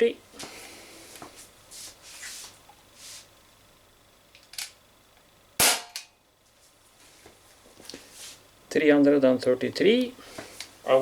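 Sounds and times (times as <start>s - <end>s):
air pistol shot crack: 5.6s - 6.1s.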